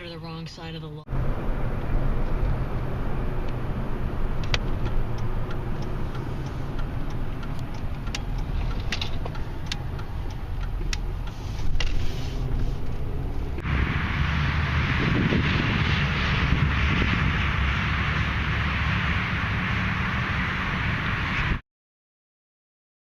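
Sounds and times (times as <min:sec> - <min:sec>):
road traffic rumble: 0:00.0 - 0:21.6
sharp clicks: 0:04.4 - 0:12.0
loud hiss: 0:13.6 - 0:21.6.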